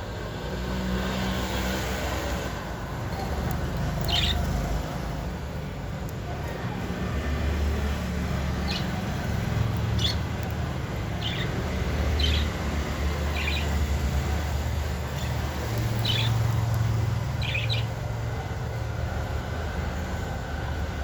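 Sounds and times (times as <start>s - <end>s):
budgerigars chirping: 4.0s - 4.5s, 8.6s - 12.6s, 13.2s - 13.9s, 15.1s - 16.6s, 17.3s - 18.0s.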